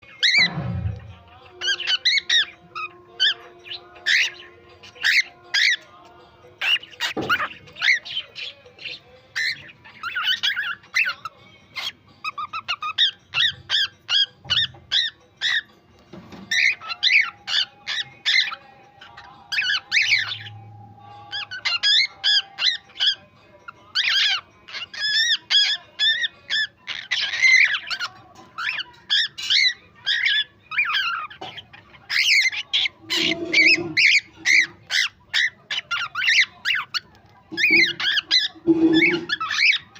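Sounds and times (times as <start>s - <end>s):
cockatiel chirping and whistling: 0.1s - 0.6s, 6.6s - 15.7s, 16.3s - 20.5s, 21.3s - 23.2s, 23.9s - 39.9s.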